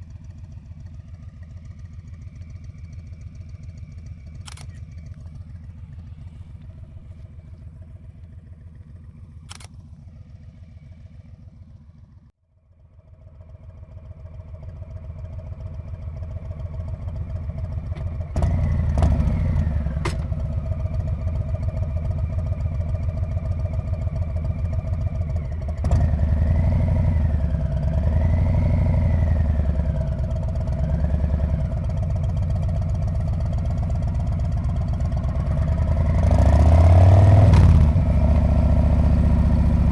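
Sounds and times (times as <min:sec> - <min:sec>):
motorcycle engine running: 0:00.0 - 0:39.9
sharp clicks: 0:04.4 - 0:05.3, 0:09.5 - 0:09.8.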